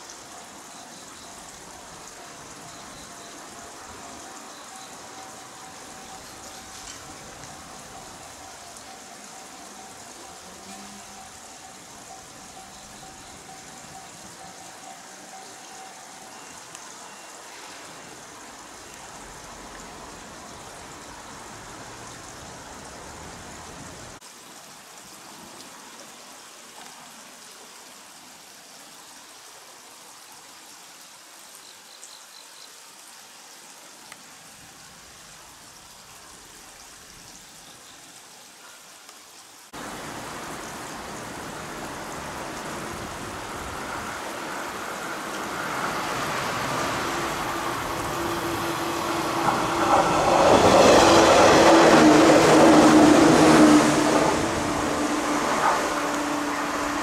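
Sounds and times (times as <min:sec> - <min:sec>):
outdoor hiss: 0:00.0 - 0:57.0
electric train approaching: 0:01.2 - 0:24.2, 0:39.8 - 0:57.0.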